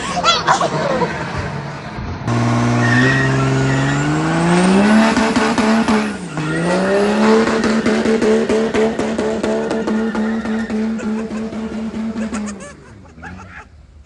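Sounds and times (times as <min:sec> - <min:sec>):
vehicle engine accelerating: 0:01.7 - 0:13.5.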